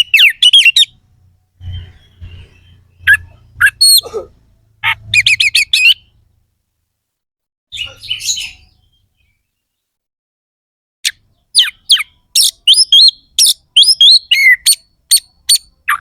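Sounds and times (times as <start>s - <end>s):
bird singing whistled notes: 0.0s - 1.0s, 1.6s - 4.0s, 5.2s - 6.1s, 11.1s - 16.0s.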